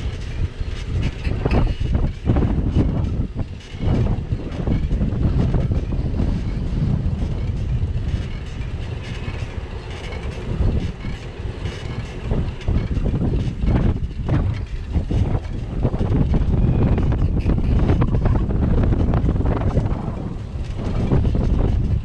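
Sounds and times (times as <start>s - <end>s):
bicycle knocks and rattles: 0.0s - 22.0s
wind rumble on microphone: 0.0s - 22.0s.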